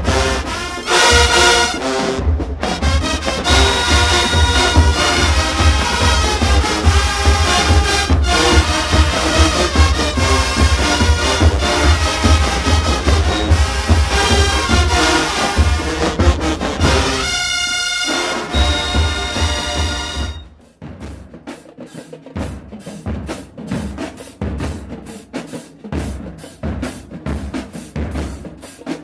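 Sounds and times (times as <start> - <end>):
marching band playing: 0.0 - 20.6
drum beat: 0.0 - 29.0.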